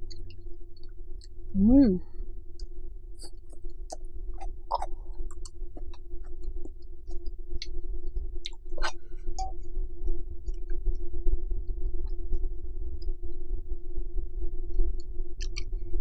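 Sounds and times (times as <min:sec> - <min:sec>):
steady low hum: 0:00.0 - 0:16.0
person chewing food: 0:02.6 - 0:09.6, 0:15.4 - 0:15.7
lip smacks: 0:03.2 - 0:07.8, 0:15.4 - 0:15.7
wet mouth clicks: 0:03.2 - 0:07.8, 0:08.5 - 0:09.5, 0:15.4 - 0:15.7.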